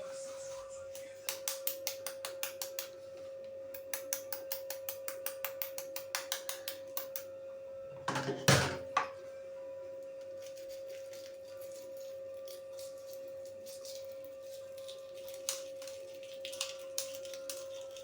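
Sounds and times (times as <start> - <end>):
steady high hum: 0.0 - 6.1
utensil clatter: 8.0 - 9.0.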